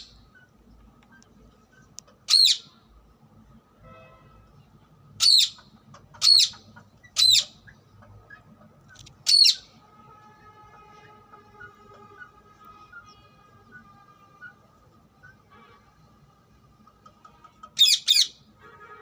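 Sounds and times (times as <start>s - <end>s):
parakeet high-pitched calls: 1.2s - 2.8s, 5.2s - 9.7s, 10.8s - 15.5s, 17.4s - 18.5s.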